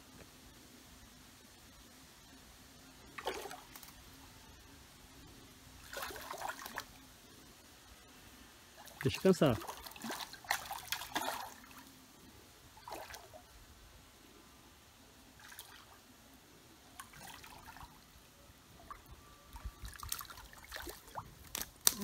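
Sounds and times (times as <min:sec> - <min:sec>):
fish splashing at water surface: 0:03.2 - 0:03.9, 0:09.6 - 0:11.8
fish slapping on bank: 0:03.2 - 0:04.0, 0:09.6 - 0:11.8.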